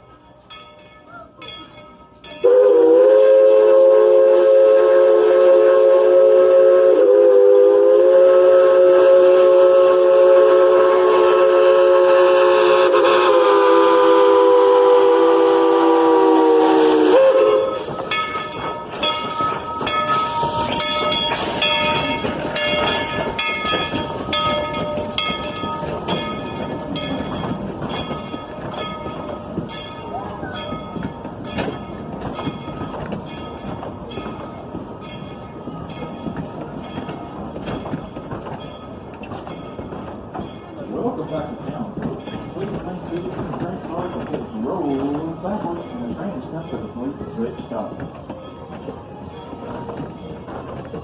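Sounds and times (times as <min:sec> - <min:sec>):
train running with regular beat: 0:00.0 - 0:51.0
steam locomotive chime whistle: 0:01.0 - 0:29.2.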